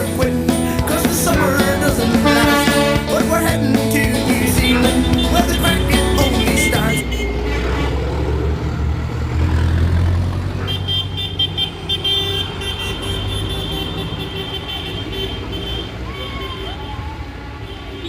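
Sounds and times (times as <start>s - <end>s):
steady high tone: 0.0s - 7.4s
tractor engines rumbling: 0.0s - 18.0s.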